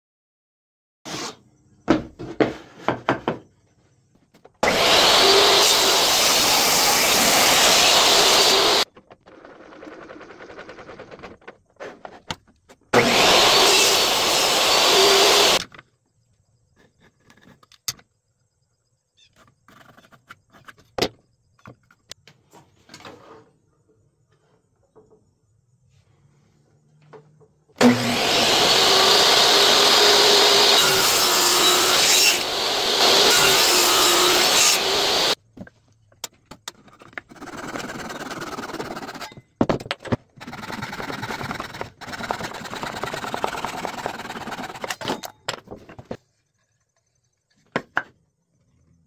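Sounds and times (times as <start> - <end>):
knocks and clicks handling wood: 1.9 - 4.6, 19.4 - 23.4, 35.5 - 37.4, 39.4 - 40.4, 41.4 - 48.2
power tool cutting wood: 4.6 - 8.9, 12.9 - 15.6, 27.8 - 35.4, 40.4 - 44.9.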